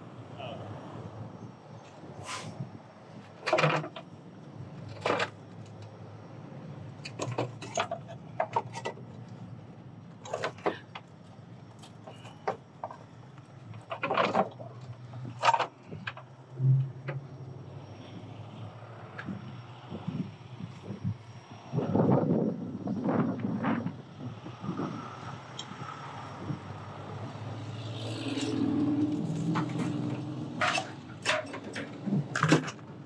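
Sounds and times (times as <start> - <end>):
heavy chains clanking: 28.1 - 32.8.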